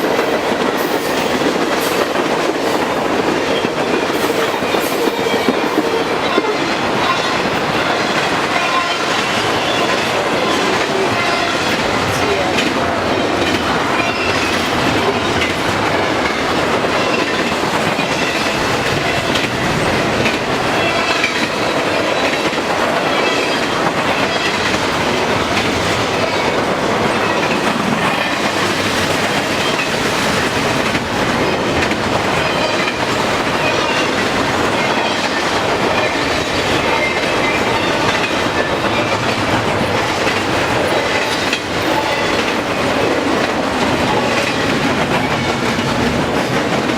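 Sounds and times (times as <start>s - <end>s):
train wheels clattering over rail joints: 0.0s - 46.9s.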